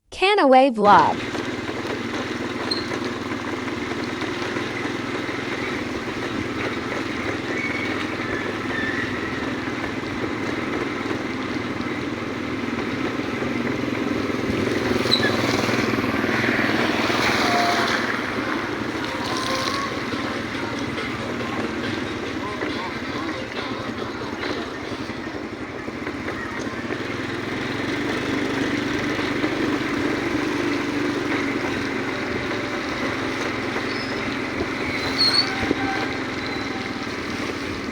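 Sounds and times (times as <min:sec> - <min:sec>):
motorcycle engine: 0:00.9 - 0:37.9.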